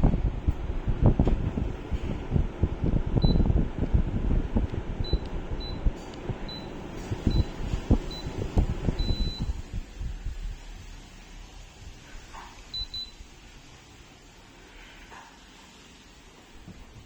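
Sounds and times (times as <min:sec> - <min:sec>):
microphone handling noise: 0:00.0 - 0:10.4.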